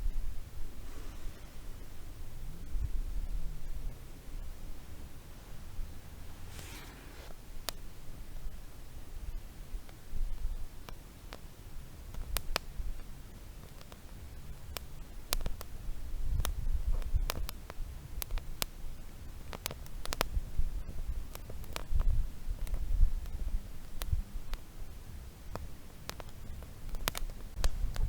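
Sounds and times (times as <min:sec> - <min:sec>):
campfire crackling and popping: 0:05.6 - 0:08.1, 0:09.7 - 0:28.0.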